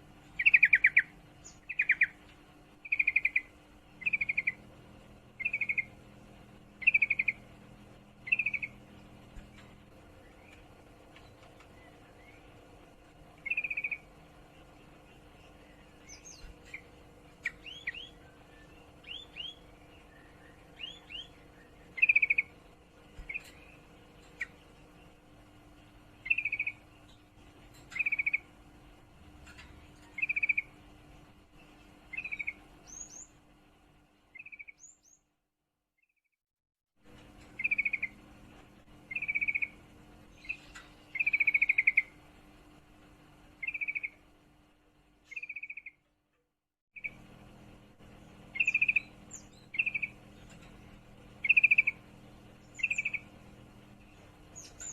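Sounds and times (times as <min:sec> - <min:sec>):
bird chattering call: 0:02.8 - 0:04.6, 0:05.4 - 0:05.9, 0:06.8 - 0:07.4, 0:08.2 - 0:08.8, 0:13.4 - 0:14.1, 0:22.0 - 0:22.5, 0:26.2 - 0:26.8, 0:27.9 - 0:28.5, 0:30.1 - 0:30.7, 0:37.6 - 0:38.2, 0:39.1 - 0:39.8, 0:40.4 - 0:42.1, 0:43.6 - 0:44.2, 0:48.5 - 0:49.1, 0:49.7 - 0:50.2, 0:51.4 - 0:52.0.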